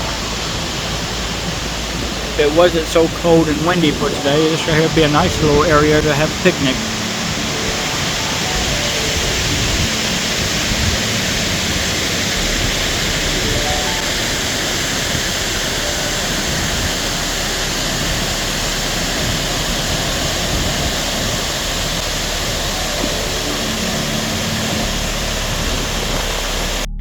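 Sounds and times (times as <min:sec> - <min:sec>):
waterfall rushing: 0:00.0 - 0:26.9
wind buffeting microphone: 0:00.0 - 0:26.9.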